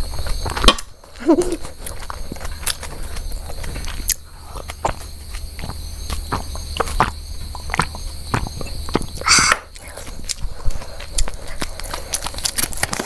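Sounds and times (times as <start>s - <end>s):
chewing mouth sounds: 8.6s - 13.0s.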